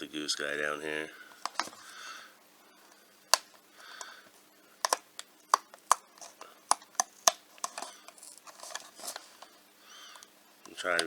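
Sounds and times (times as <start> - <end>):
packaging clicking and tapping: 1.4 - 1.8, 4.8 - 9.5.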